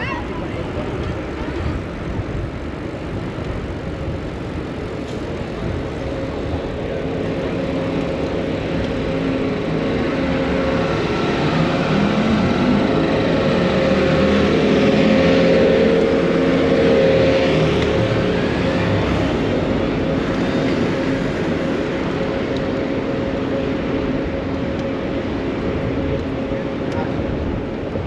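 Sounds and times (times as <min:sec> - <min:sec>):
car engines running: 0:00.0 - 0:28.0
vehicle accelerating: 0:05.0 - 0:27.2.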